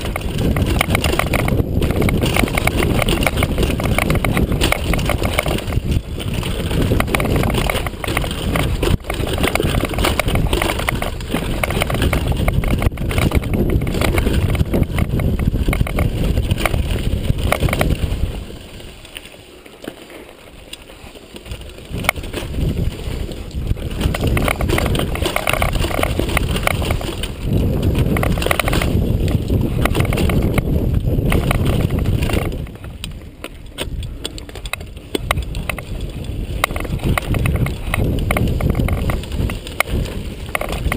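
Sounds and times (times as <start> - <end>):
mountain bike rattling: 0.0 - 40.9
wind and terrain rumble: 0.0 - 40.9.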